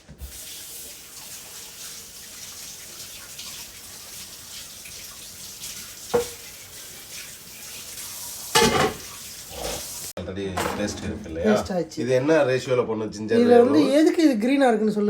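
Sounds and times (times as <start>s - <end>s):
running water from tap: 0.0s - 10.2s.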